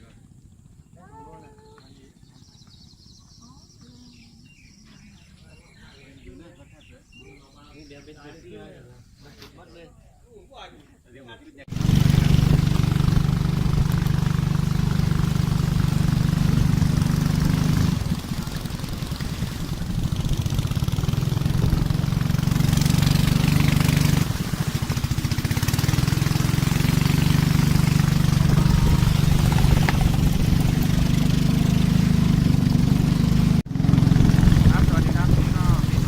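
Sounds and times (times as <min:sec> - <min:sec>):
boat engine running: 0:11.7 - 0:36.0.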